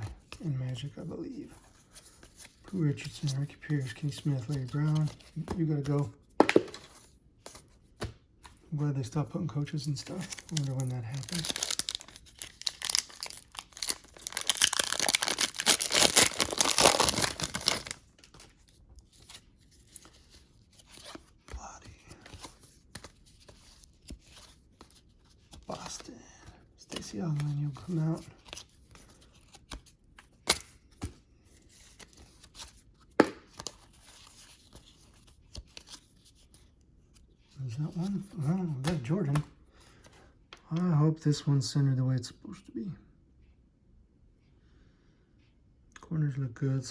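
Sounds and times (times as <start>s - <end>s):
trading cards tapping and rustling: 1.7s - 31.2s, 31.8s - 36.6s, 38.0s - 40.6s
card snapping: 6.4s - 6.9s
card pack wrapper crinkling and tearing: 9.5s - 18.6s.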